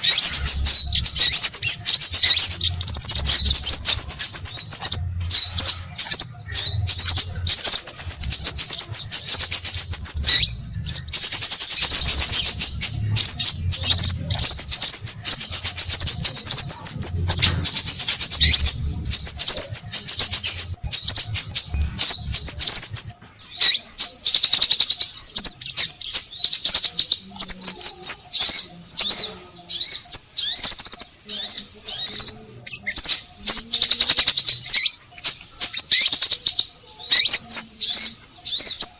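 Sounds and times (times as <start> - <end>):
low hum: 0.0 - 23.1
rapid high-pitched bird chirps: 0.0 - 38.9.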